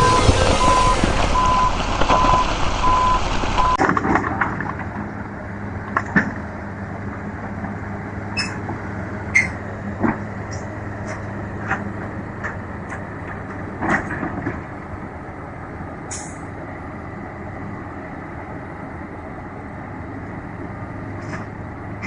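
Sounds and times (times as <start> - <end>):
truck reversing alarm beeping: 0.0 - 3.8
heavy engine running: 0.0 - 22.0
short squeaks: 8.4 - 8.6, 9.3 - 9.6.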